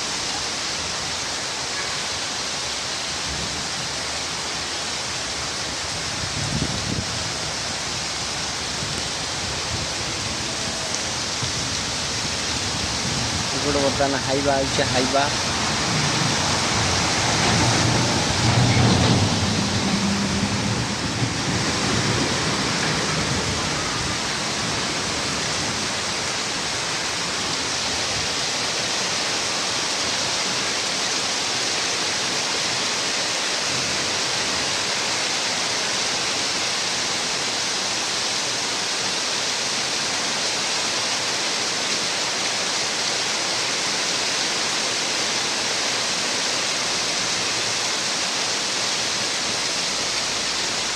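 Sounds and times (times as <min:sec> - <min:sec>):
heavy rain pouring: 0:00.0 - 0:50.9
low rumble: 0:15.4 - 0:24.4.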